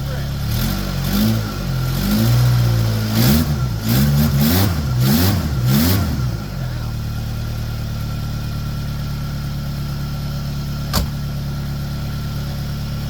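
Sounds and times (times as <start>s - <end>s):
car engine idling: 0.0s - 13.0s
sharp click: 10.9s - 11.2s.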